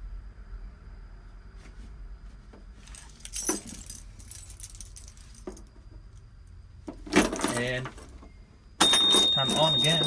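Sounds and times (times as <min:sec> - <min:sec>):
keys jingling: 0:02.9 - 0:05.7, 0:07.1 - 0:08.2, 0:08.8 - 0:10.0.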